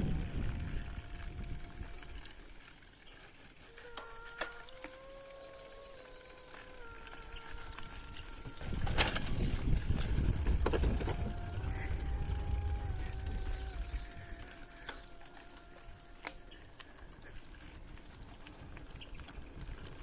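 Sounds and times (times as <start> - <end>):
wind on microphone: 0.0 - 2.4, 7.4 - 14.7
faint steady hum: 0.0 - 19.9
bike tyres rumbling on trail: 0.0 - 20.0
bike knocks: 8.4 - 11.5.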